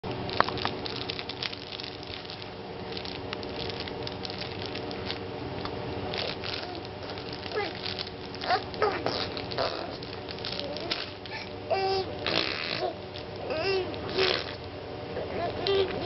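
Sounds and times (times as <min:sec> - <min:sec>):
steady hum: 0:00.0 - 0:16.0
baby making squeaky noises: 0:08.4 - 0:10.0, 0:10.8 - 0:14.6, 0:15.3 - 0:16.0.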